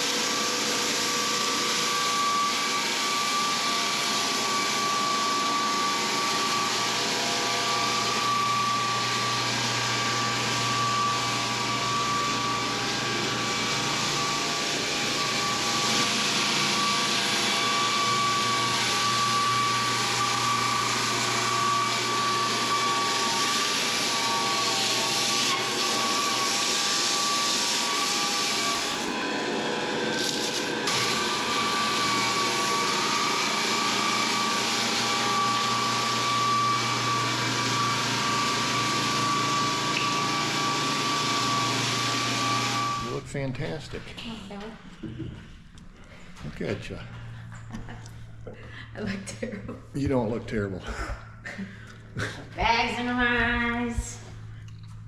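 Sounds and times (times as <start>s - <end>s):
floor sander rasping on wood: 0.0s - 43.2s
sander motor whine: 0.0s - 43.2s.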